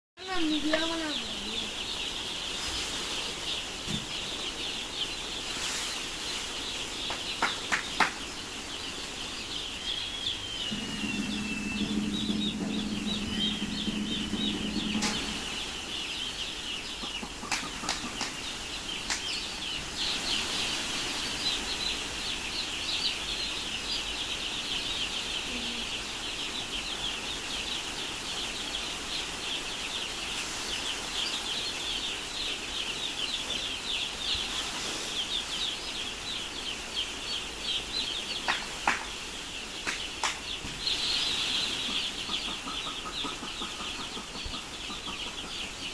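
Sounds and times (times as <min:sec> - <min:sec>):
chicks peeping: 0:00.2 - 0:45.9
low steady hum: 0:09.3 - 0:18.3.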